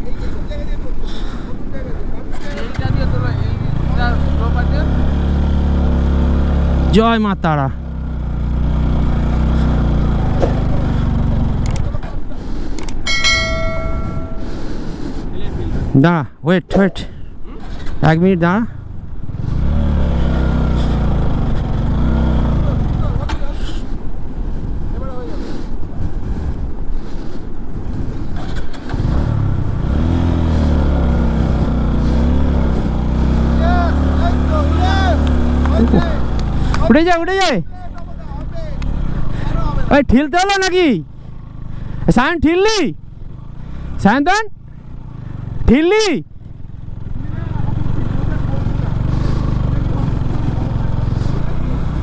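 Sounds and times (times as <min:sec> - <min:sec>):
motorcycle engine under load: 0:02.4 - 0:14.9, 0:18.7 - 0:24.4, 0:28.2 - 0:39.9, 0:43.0 - 0:52.0
sharp clicks: 0:11.6 - 0:11.9, 0:12.7 - 0:13.0.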